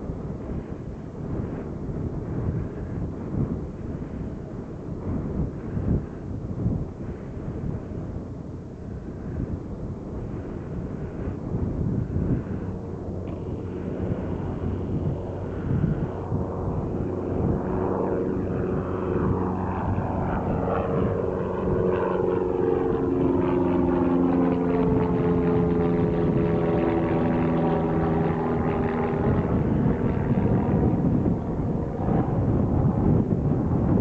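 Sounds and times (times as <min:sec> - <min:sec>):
propeller plane passing: 0:00.0 - 0:34.0.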